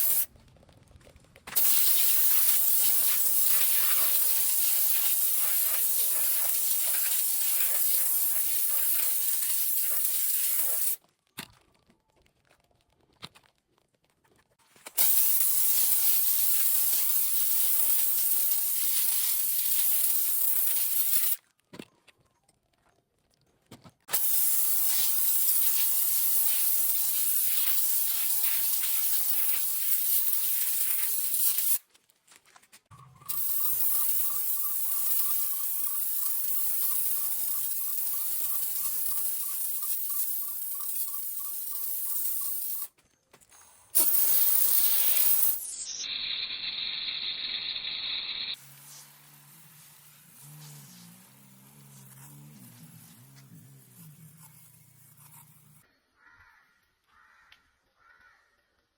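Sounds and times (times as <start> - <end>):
foam sprayer hissing: 0.0 - 0.3, 1.5 - 11.0, 15.0 - 21.4, 24.1 - 31.8, 33.3 - 42.9, 44.0 - 55.8.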